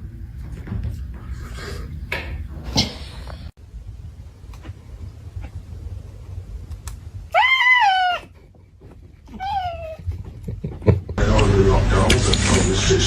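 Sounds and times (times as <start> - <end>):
high-pitched animal cry: 7.3 - 8.3, 9.3 - 10.0.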